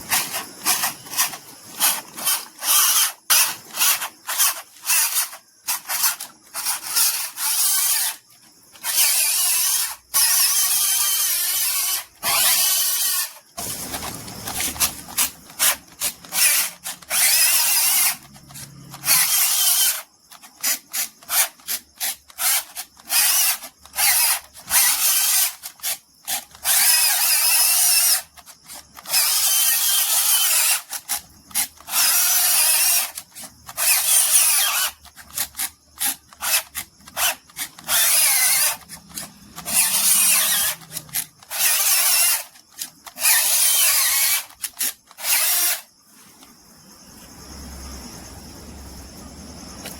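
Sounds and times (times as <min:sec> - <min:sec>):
tool rasping material: 0:00.0 - 0:28.2.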